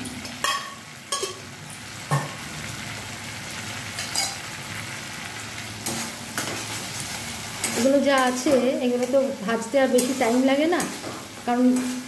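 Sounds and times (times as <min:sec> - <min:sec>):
paste sizzling in oil: 0:00.0 - 0:12.0.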